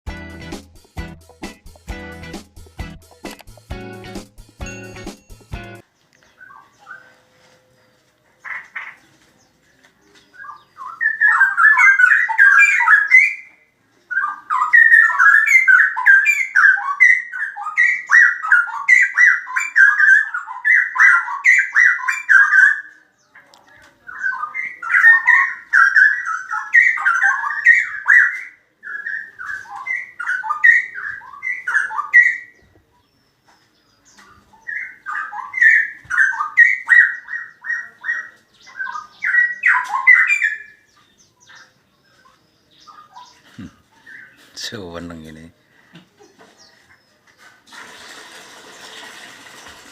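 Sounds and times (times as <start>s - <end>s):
bird singing rich warbling phrases: 5.7s - 7.2s, 10.2s - 46.8s.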